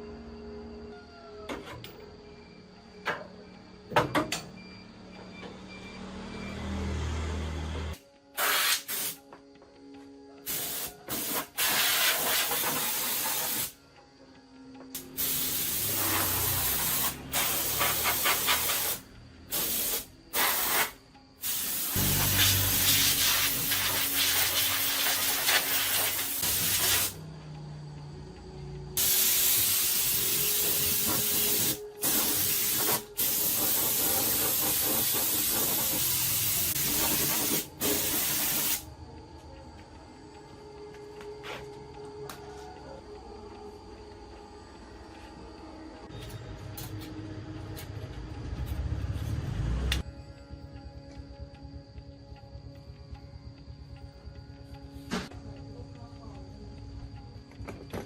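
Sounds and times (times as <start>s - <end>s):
hissing spray: 8.4s - 9.2s, 10.5s - 13.8s, 15.0s - 27.2s, 29.0s - 38.9s.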